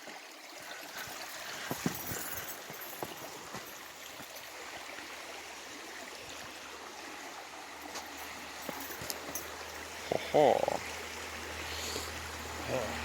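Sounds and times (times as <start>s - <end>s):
small stream running: 0.0s - 13.0s.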